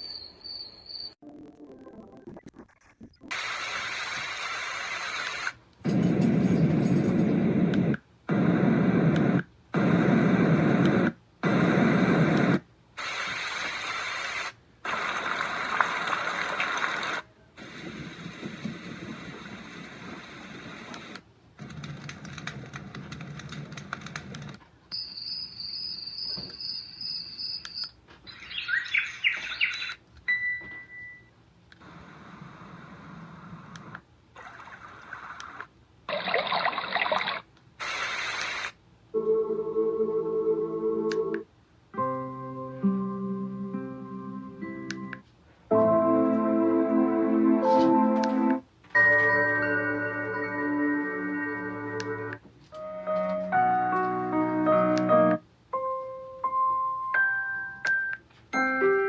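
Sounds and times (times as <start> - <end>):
bird-like chirps: 0.0 - 1.2, 5.9 - 7.3, 24.9 - 30.0
white noise machine hissing: 3.4 - 21.2, 31.8 - 35.6.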